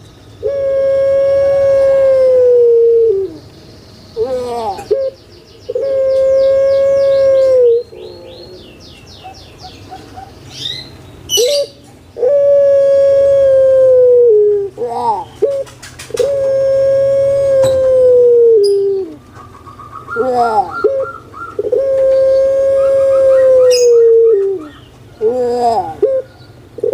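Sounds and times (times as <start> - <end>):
dove calling: 0.0 - 26.9
small birds chirping: 3.2 - 12.5, 14.6 - 18.0, 18.6 - 26.9.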